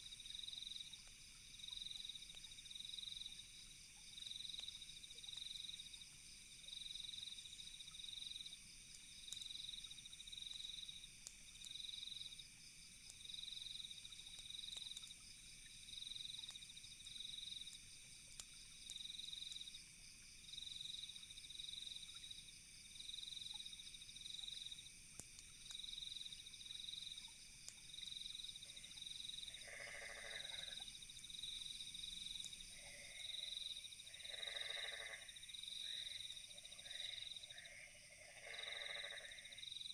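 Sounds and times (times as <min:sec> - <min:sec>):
campfire crackling: 0:00.0 - 0:37.8
crickets chirping: 0:00.0 - 0:39.9
night insects humming: 0:00.0 - 0:39.9
frog croaking: 0:29.4 - 0:30.9, 0:32.7 - 0:39.7.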